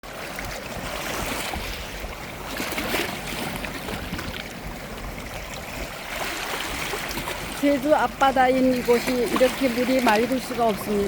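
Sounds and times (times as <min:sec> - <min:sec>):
seawater washing over stones: 0:00.0 - 0:11.0.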